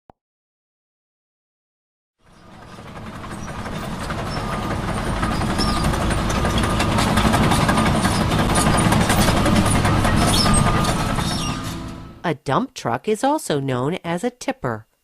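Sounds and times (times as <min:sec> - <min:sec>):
rough clattering truck engine: 0:02.2 - 0:12.2.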